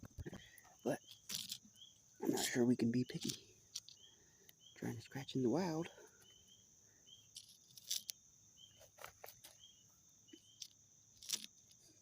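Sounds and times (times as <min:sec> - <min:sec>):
insects trilling: 0:00.0 - 0:12.0
short insect chirps: 0:00.0 - 0:12.0
coin scraping scratch card: 0:07.4 - 0:08.1, 0:11.2 - 0:11.5.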